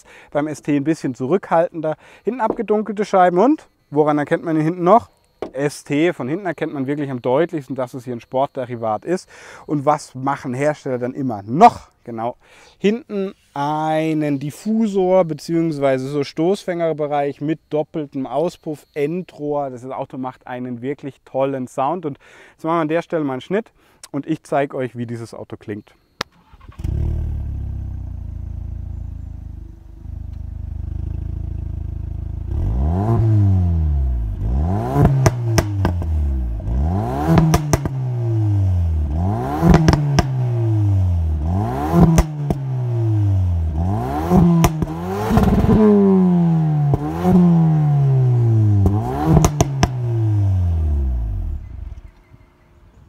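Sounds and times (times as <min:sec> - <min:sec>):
car engine revving: 0:26.7 - 0:52.0
exhaust crackles and pops: 0:34.8 - 0:38.1, 0:39.0 - 0:40.6, 0:41.4 - 0:42.8, 0:43.7 - 0:47.6, 0:48.8 - 0:50.2.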